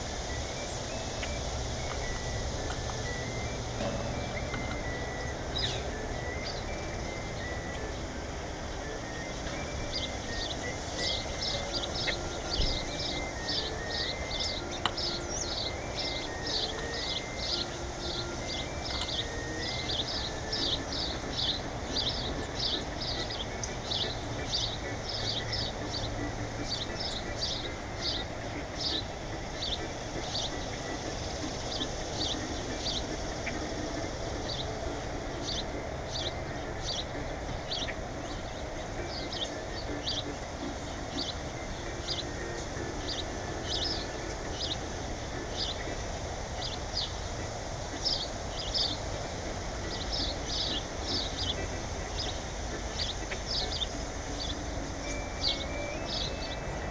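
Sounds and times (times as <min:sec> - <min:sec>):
small birds chirping: 0:00.0 - 0:56.9
steady background noise: 0:00.0 - 0:56.9.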